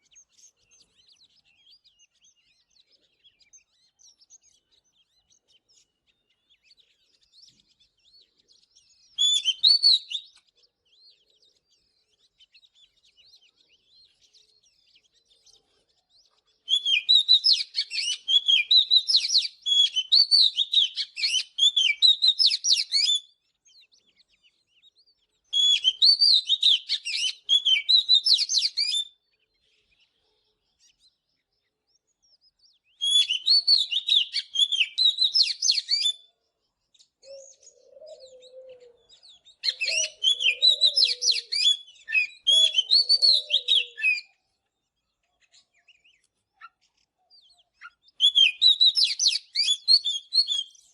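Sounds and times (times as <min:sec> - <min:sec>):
bird singing whistled phrases: 0:08.8 - 0:10.4, 0:16.6 - 0:23.4, 0:25.5 - 0:29.2, 0:32.8 - 0:36.3, 0:37.2 - 0:44.4, 0:47.3 - 0:50.9.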